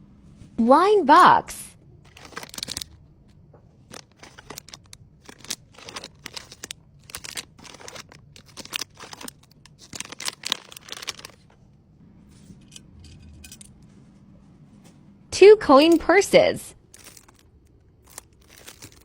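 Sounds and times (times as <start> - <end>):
packaging crinkling: 2.1 - 3.0, 3.8 - 11.6, 16.9 - 19.0.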